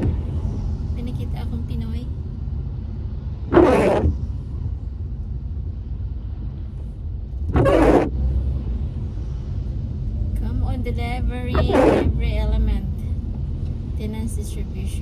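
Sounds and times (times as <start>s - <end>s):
car road rumble: 0.0s - 15.0s
windscreen wipers swishing: 0.0s - 15.0s.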